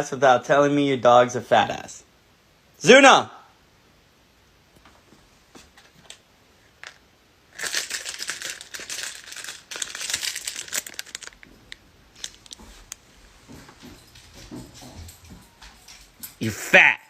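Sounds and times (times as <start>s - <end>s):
plastic packaging crinkling: 6.7s - 13.0s.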